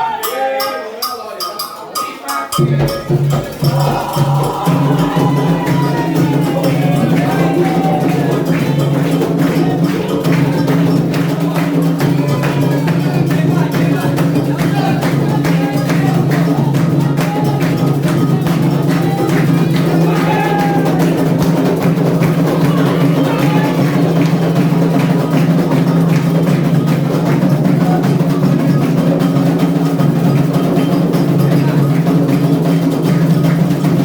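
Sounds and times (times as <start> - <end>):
bell-like percussion: 0.0 - 34.0
hand drums playing: 0.0 - 34.0
voices singing: 0.0 - 34.0.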